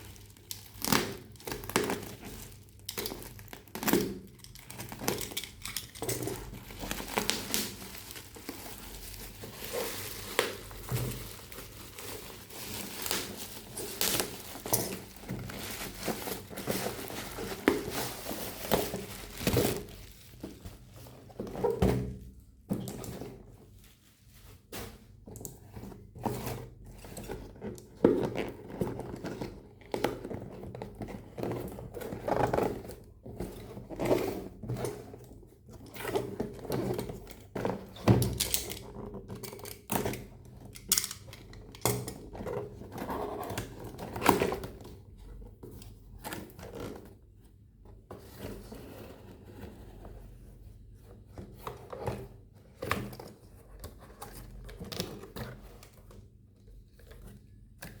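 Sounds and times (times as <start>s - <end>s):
packaging crinkling: 0.0s - 20.9s.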